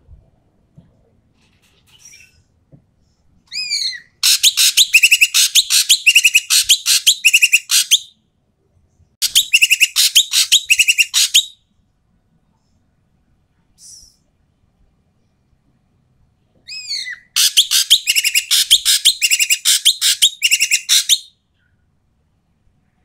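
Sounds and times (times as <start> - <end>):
bird calling harshly: 3.5 - 8.1, 9.2 - 11.6, 16.7 - 21.3.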